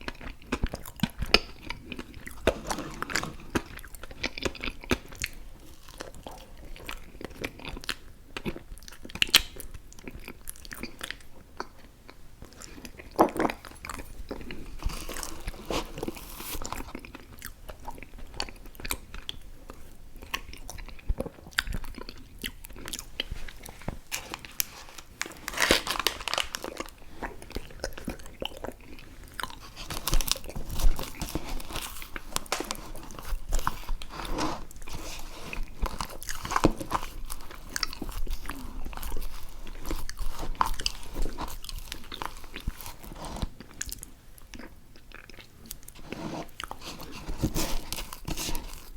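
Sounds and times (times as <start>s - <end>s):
chewing with wet mouth smacks: 3.6s - 24.8s, 26.4s - 34.1s, 35.7s - 46.0s.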